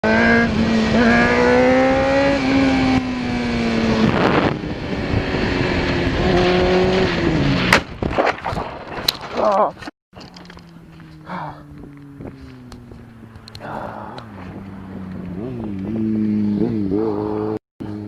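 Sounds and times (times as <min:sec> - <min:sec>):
motorcycle engines revving high: 0:00.0 - 0:07.8, 0:10.2 - 0:18.0.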